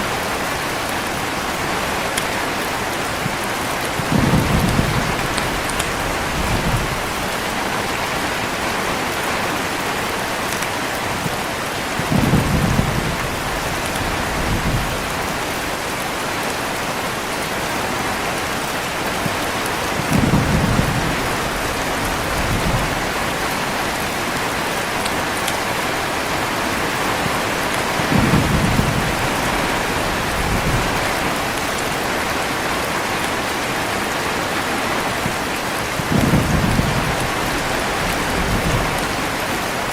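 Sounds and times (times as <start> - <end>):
heavy rain: 0.0 - 39.9
thunder rolling: 4.0 - 8.7, 12.0 - 15.5, 19.1 - 25.0, 27.2 - 31.6, 36.0 - 39.8.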